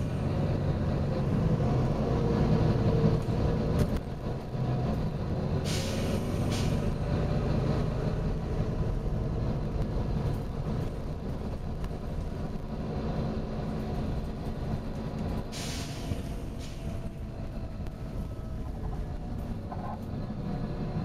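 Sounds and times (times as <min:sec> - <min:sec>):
bus engine rumble: 0:00.0 - 0:21.0
compressed air hisses: 0:05.6 - 0:06.8, 0:15.5 - 0:16.9.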